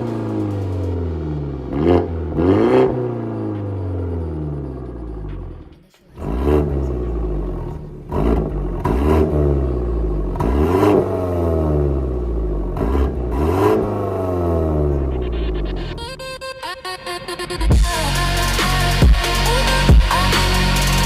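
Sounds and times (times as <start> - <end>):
sharp exhaust cracks: 0.0 - 3.8
car engine revving: 0.0 - 21.0.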